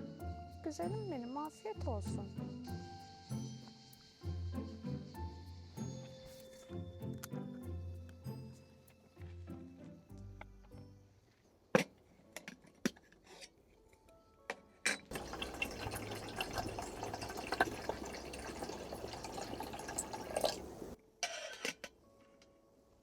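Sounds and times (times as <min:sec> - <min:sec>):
water pouring and splashing: 0:15.1 - 0:21.0.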